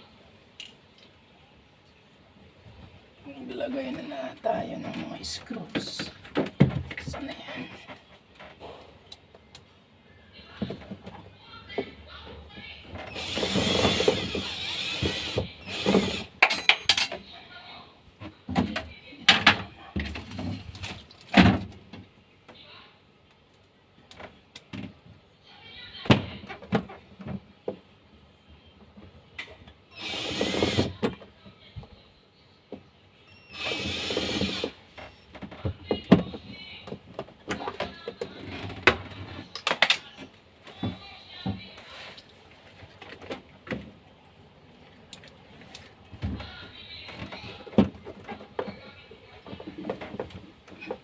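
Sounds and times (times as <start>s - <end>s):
electric screwdriver driving screw: 13.2s - 16.3s, 30.0s - 30.9s, 33.6s - 34.8s.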